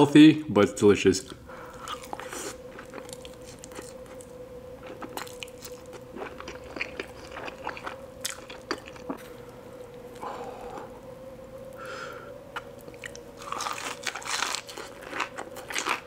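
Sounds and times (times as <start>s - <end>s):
faint steady hum: 0.0s - 16.0s
wet chewing: 1.7s - 9.3s
crunchy bites into fried food: 13.4s - 16.0s.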